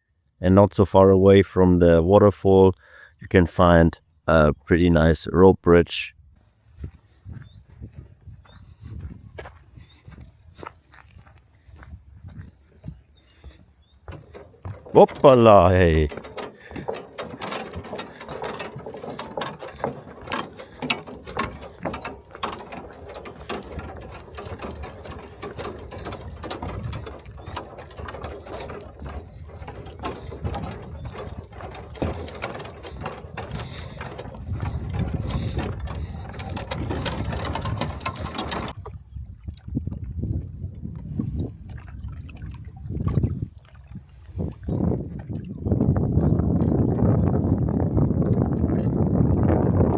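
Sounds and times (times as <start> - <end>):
bridge planks rattling underfoot: 13.2 - 38.8.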